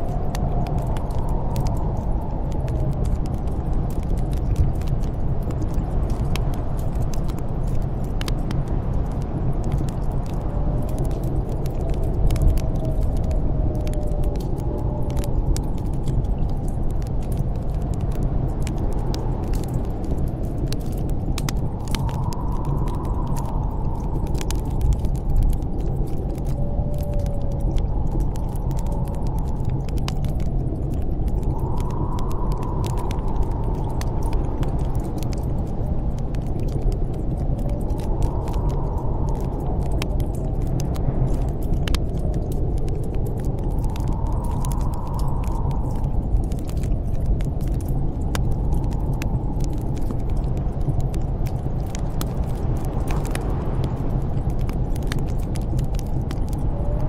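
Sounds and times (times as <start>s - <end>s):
gusting snowstorm wind: 0.0s - 57.0s
wood fire crackling: 0.0s - 57.0s
faint wind whistle: 21.4s - 36.3s, 56.4s - 57.0s.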